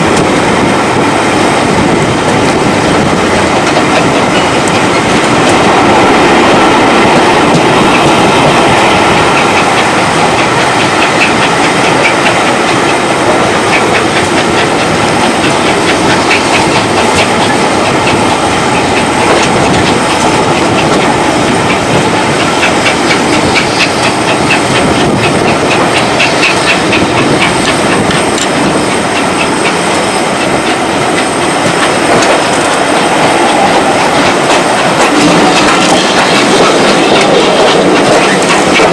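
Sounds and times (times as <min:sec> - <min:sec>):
train wheels rumbling and rattling: 0:00.0 - 0:38.9
wheels clicking over rail joints: 0:00.0 - 0:38.9.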